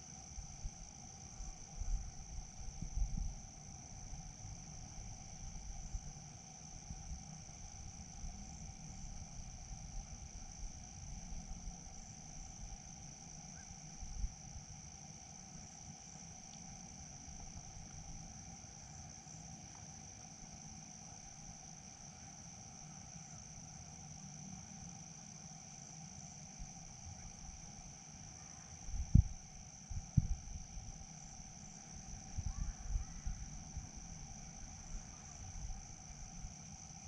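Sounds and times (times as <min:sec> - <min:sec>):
crickets trilling: 0:00.0 - 0:37.0
faint low rumble: 0:00.4 - 0:18.8, 0:28.9 - 0:36.6.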